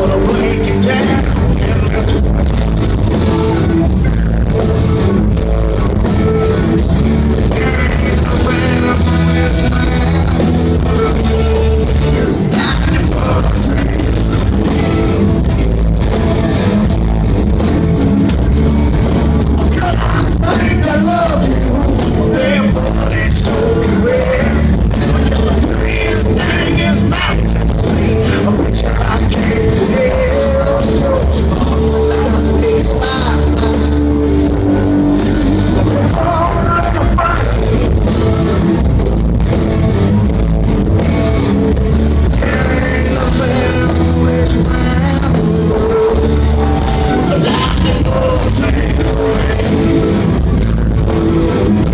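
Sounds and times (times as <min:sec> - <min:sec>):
man singing lead vocal: 0:00.0 - 0:02.9, 0:07.3 - 0:15.2, 0:19.6 - 0:38.6, 0:42.3 - 0:50.7
electric guitars: 0:00.0 - 0:51.9
steady drum beat: 0:00.0 - 0:51.9.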